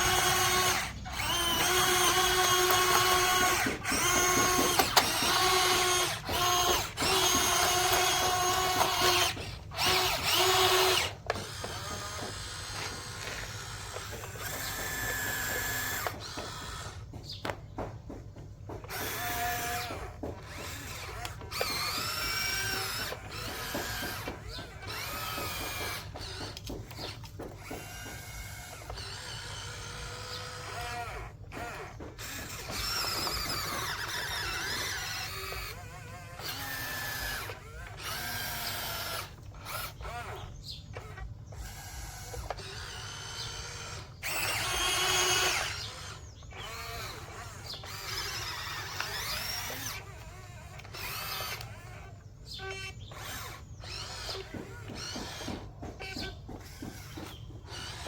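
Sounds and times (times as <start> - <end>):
toy electric motors whining: 0.0 - 58.0.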